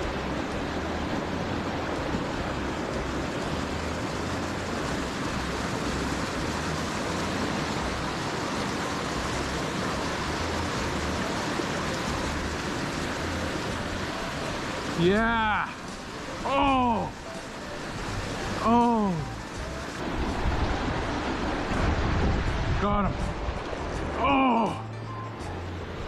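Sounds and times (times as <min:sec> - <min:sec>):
creek water rushing: 0:00.0 - 0:26.0
wind buffeting microphone: 0:20.0 - 0:24.1.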